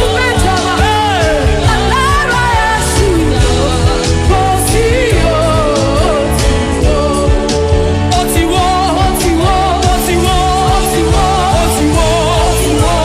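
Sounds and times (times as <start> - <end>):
band with bass and drums: 0.0 - 13.0
person singing: 0.0 - 13.0.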